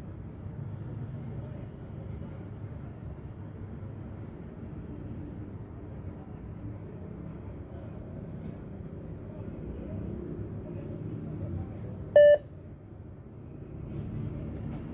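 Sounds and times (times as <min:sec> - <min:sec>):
short electronic beep: 0:12.2 - 0:12.4.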